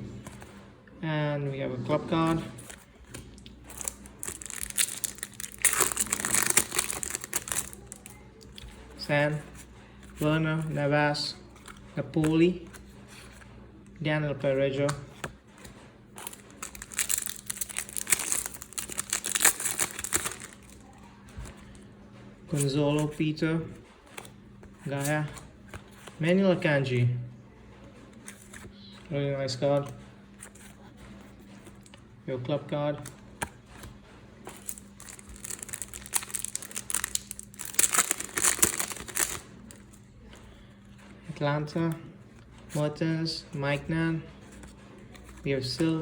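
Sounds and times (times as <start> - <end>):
foil packet crinkling and tearing: 3.4 - 8.2, 16.2 - 21.8, 34.5 - 40.0.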